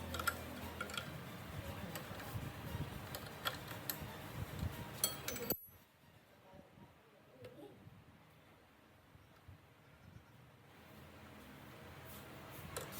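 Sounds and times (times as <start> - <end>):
steady background noise: 0.0 - 12.9
metal tools clinking: 5.0 - 5.8.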